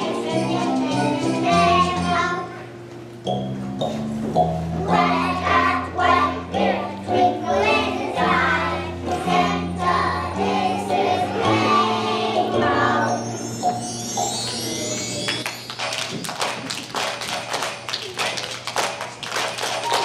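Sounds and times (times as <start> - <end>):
children's choir singing: 0.0 - 2.6, 4.8 - 13.8
musical accompaniment: 0.0 - 20.0.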